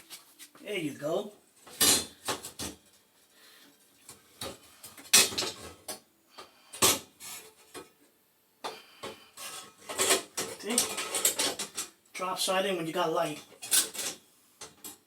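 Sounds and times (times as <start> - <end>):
metal tubes clinking and clunking: 9.4 - 12.0, 13.4 - 15.0.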